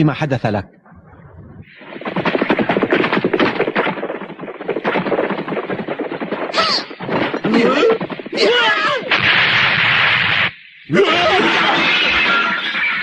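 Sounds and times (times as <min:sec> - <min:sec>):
cartoon gunfire cracks: 0:09.1 - 0:10.6.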